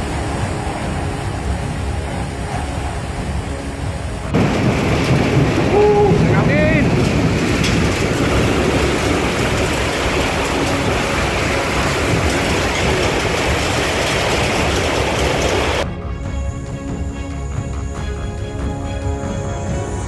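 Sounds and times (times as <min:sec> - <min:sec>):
heavy rain: 0:00.0 - 0:15.9
wind buffeting microphone: 0:00.0 - 0:15.9.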